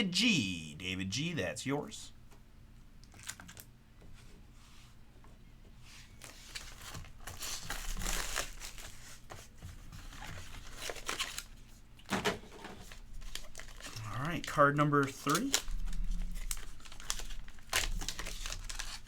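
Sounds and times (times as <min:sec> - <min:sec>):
plastic packaging crinkling: 0:03.0 - 0:03.7, 0:06.2 - 0:09.2, 0:10.2 - 0:11.6, 0:12.8 - 0:19.0
sharp plastic crackle: 0:03.0 - 0:03.7, 0:13.0 - 0:19.0.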